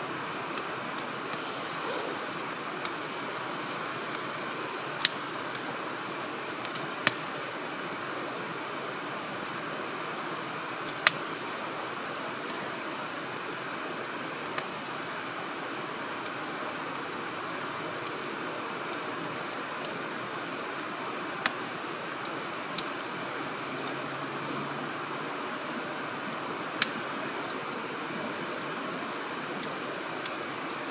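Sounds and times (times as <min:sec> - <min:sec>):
wood fire hissing: 0:00.0 - 0:30.9
burning wood popping: 0:01.3 - 0:04.3.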